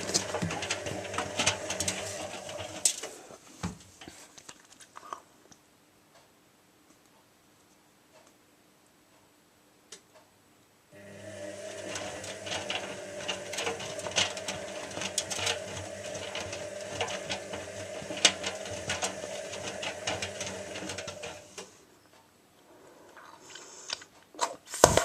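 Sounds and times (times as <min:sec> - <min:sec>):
washing machine running: 0:00.0 - 0:03.3, 0:11.0 - 0:21.8.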